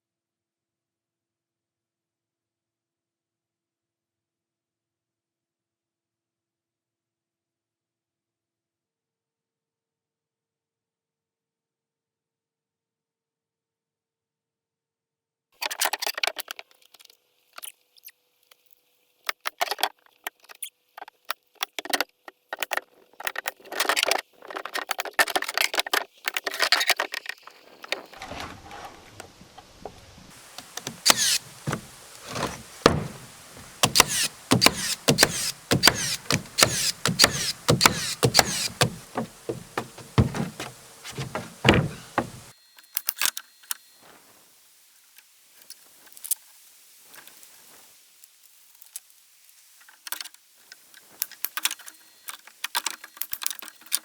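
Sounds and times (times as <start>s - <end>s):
steady hiss: 30.3s - 42.8s, 43.4s - 54.0s
knocks and taps on wood framing: 30.5s - 42.5s.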